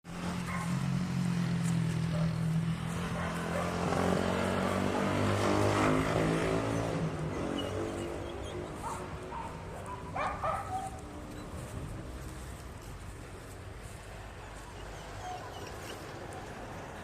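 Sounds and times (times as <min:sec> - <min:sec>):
dog yelping and whimpering: 0:06.7 - 0:11.6, 0:14.6 - 0:16.4.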